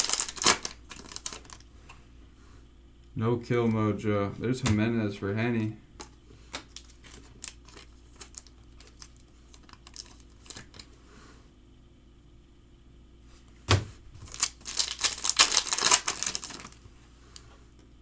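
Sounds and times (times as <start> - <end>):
foil wrapper tearing: 0.0 - 1.7, 6.7 - 10.9, 14.3 - 16.8
cards being handled: 0.0 - 2.0, 6.0 - 11.0, 14.2 - 17.5.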